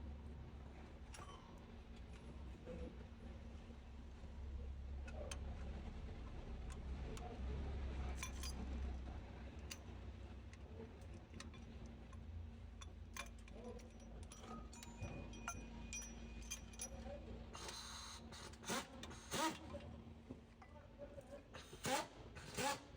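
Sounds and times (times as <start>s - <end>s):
light metal clicks and clinks: 8.1s - 17.4s.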